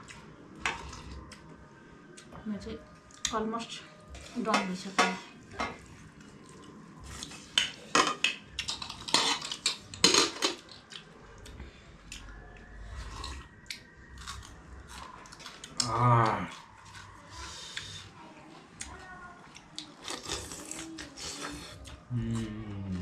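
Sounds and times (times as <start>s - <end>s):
plates and utensils clinking: 4.4s - 5.9s, 7.6s - 10.7s
person humming: 20.6s - 23.0s.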